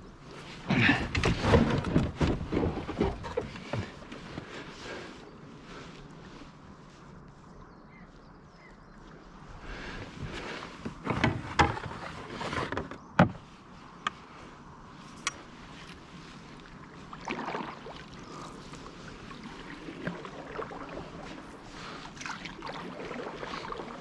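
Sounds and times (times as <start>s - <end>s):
canoe knocking and scraping: 0.4s - 5.2s, 10.0s - 14.2s.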